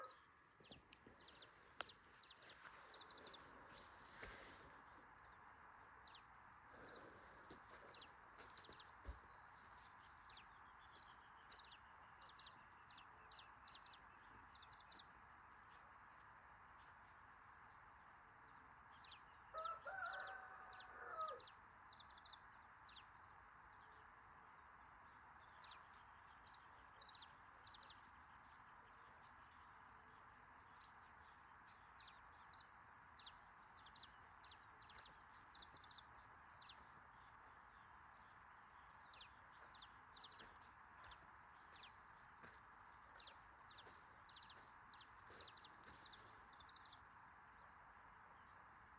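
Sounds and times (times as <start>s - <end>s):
distant rooster crowing: 0.0s - 0.2s, 19.5s - 21.6s
background hiss: 0.0s - 19.5s
small birds chirping: 0.0s - 48.9s.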